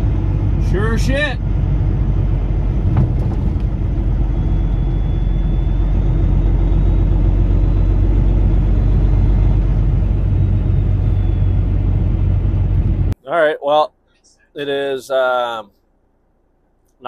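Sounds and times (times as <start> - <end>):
truck engine rumbling: 0.0 - 13.2.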